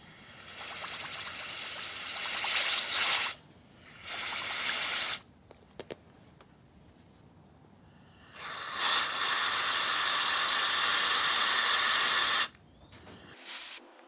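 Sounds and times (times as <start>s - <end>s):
compressed air blow gun hissing: 0.0s - 5.2s, 8.3s - 12.5s, 13.1s - 13.8s.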